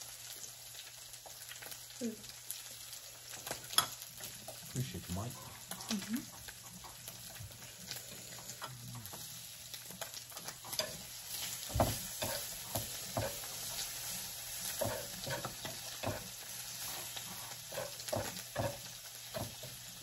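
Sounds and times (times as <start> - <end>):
meat sizzling on a griddle: 0.0 - 20.0
chopsticks knocking on griddle: 11.7 - 13.4, 14.8 - 16.3, 17.8 - 19.8.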